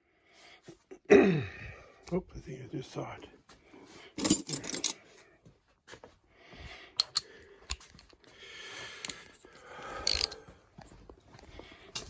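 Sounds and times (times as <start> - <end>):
metal hand tools clinking: 4.2 - 5.0, 7.0 - 8.2, 10.0 - 10.4.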